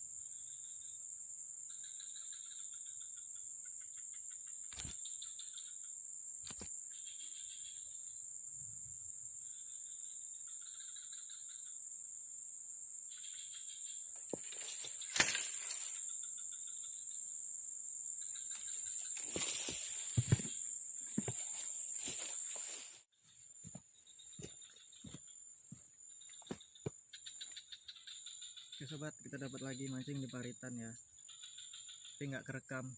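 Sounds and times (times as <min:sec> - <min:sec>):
high-pitched insect drone: 0:00.0 - 0:32.9
pulsing insect calls: 0:00.0 - 0:32.9
sharp knocks and rustles: 0:14.2 - 0:16.0, 0:18.6 - 0:22.9.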